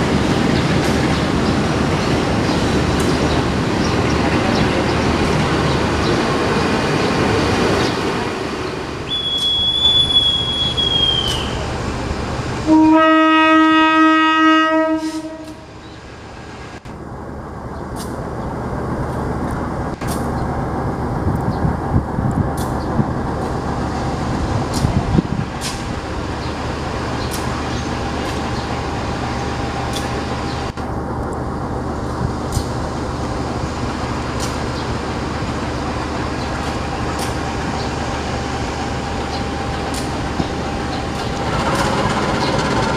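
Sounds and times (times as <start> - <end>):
passenger coaches rumbling past: 0.0 - 42.9
high wheel squeal: 9.1 - 11.7
diesel locomotive horn blast: 12.6 - 15.7
wheels clicking on rails: 39.0 - 42.9.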